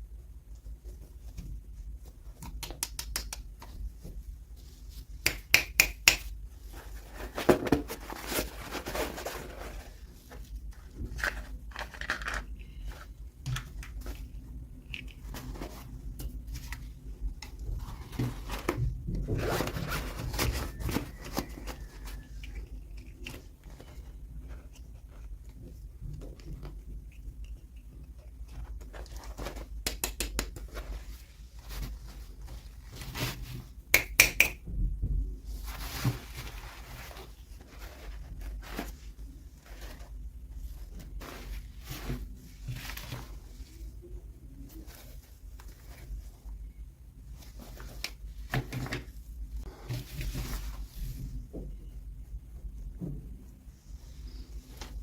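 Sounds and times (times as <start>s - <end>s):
packaging rustling and scraping: 6.6s - 27.3s, 35.5s - 44.0s, 47.3s - 51.5s.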